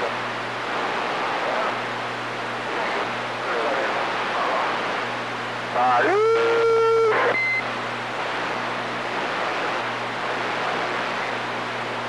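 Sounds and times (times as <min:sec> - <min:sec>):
radio static hiss with low hum: 0:00.0 - 0:12.0
radio held tone: 0:05.7 - 0:07.6
short high beep: 0:07.3 - 0:07.6.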